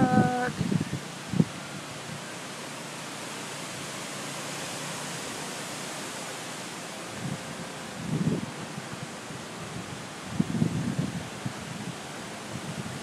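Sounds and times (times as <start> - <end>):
wind gusts buffeting microphone: 0.0 - 2.4, 6.6 - 13.0
strong wind blowing through trees: 0.0 - 13.0.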